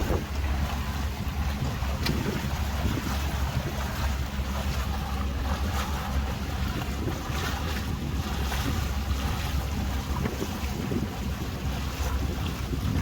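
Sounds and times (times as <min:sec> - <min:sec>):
boat motor running: 0:00.0 - 0:13.0
water rushing along hull: 0:00.0 - 0:13.0
wind buffeting microphone: 0:00.0 - 0:13.0.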